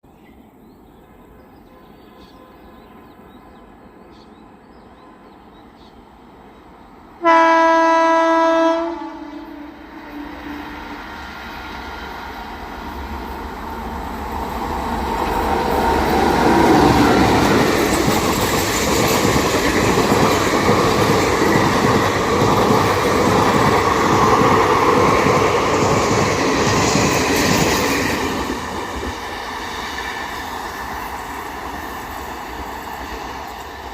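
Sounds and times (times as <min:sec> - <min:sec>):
locomotive horn blast: 0:07.2 - 0:11.0
train wheels clattering on rails: 0:14.2 - 0:33.9.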